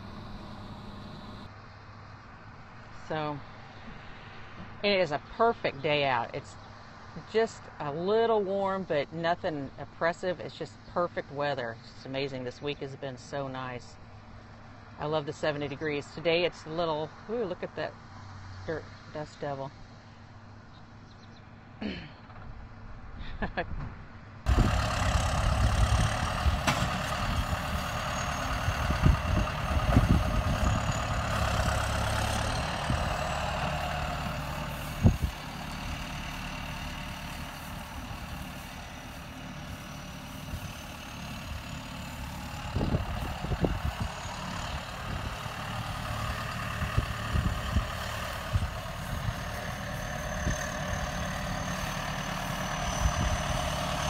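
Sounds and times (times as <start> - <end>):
tractor engine running: 0.0 - 1.5, 24.5 - 54.0
wind buffeting microphone: 24.5 - 27.9, 28.5 - 31.8, 32.7 - 33.2, 35.0 - 35.4, 42.6 - 45.6, 46.8 - 49.5, 52.9 - 53.6.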